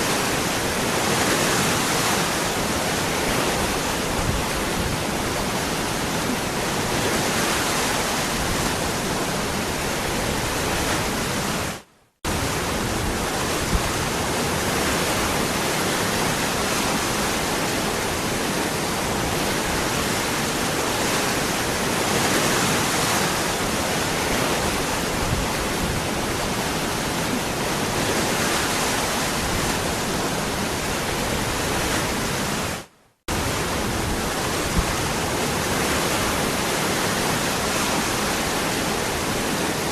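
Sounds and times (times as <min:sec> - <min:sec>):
waterfall rushing: 0:12.3 - 0:39.9.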